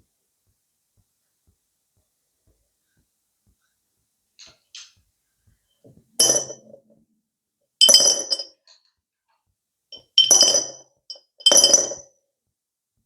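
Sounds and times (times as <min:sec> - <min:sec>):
glass clinks: 0:06.2 - 0:06.8, 0:07.8 - 0:08.8, 0:10.0 - 0:12.0.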